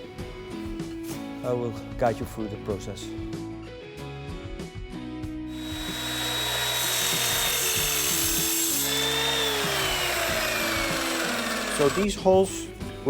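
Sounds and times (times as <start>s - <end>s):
background music: 0.0s - 13.0s
power tool whining on metal: 5.5s - 12.2s.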